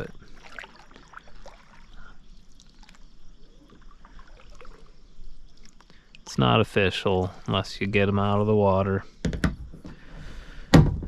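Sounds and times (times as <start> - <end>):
water trickling and lapping: 0.0 - 9.0
small ticks and knocks: 5.6 - 6.2.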